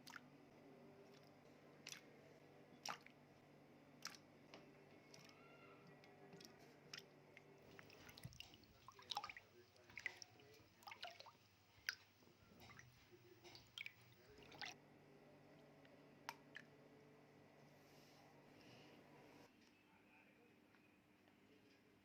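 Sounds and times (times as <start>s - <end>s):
wet squishes of food: 1.0s - 14.8s, 15.4s - 16.8s.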